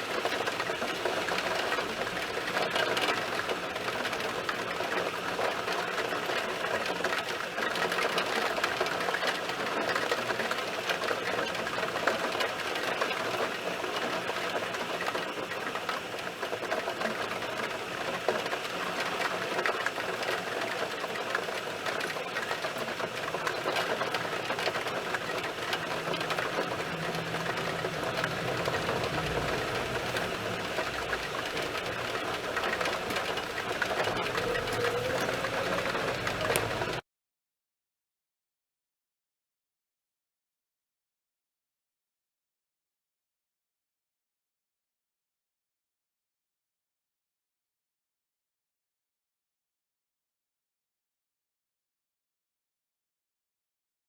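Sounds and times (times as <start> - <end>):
heavy rain falling: 0.0 - 37.0.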